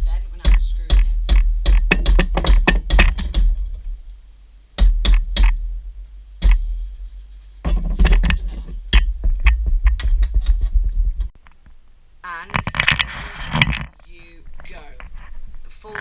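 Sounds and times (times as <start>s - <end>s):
heavy low thumps: 0.0s - 11.4s
metal bracket knocks and clicks: 7.6s - 10.8s.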